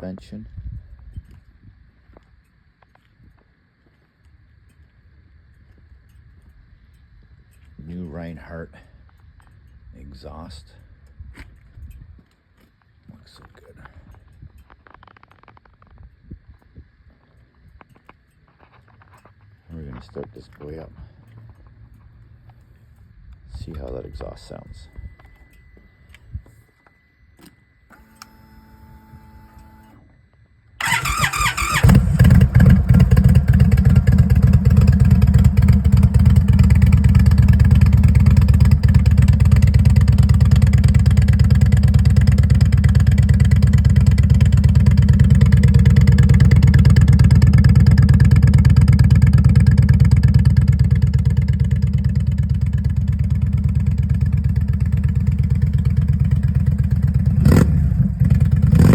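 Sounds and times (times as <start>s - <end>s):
brief whine: 23.5s - 30.8s
motorcycle starter cranking: 30.8s - 57.2s
motorcycle engine idling: 30.8s - 58.9s.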